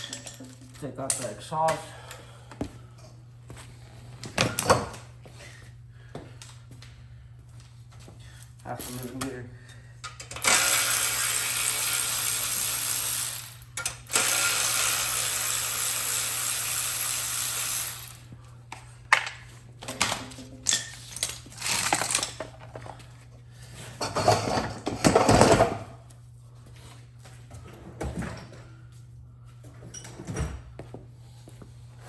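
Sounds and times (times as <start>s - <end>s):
power tool running: 10.3s - 18.2s
metal parts clinking: 20.6s - 22.5s.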